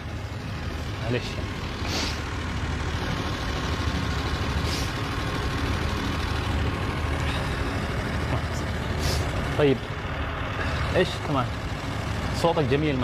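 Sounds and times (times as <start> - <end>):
vehicle engine rumbling: 0.0 - 13.0
short hisses: 1.8 - 2.2, 4.6 - 5.0, 9.0 - 9.3.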